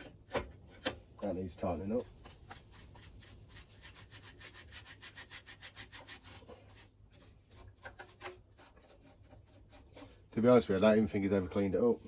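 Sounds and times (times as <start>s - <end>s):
rubbing strokes on mower housing: 1.6s - 10.8s.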